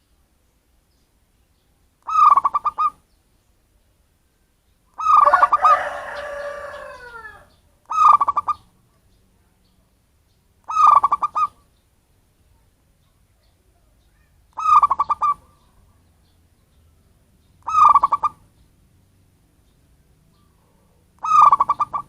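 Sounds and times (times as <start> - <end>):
dove cooing: 2.0 - 3.0, 5.0 - 8.6, 10.7 - 11.7, 14.2 - 16.0, 17.6 - 18.4, 20.3 - 22.0.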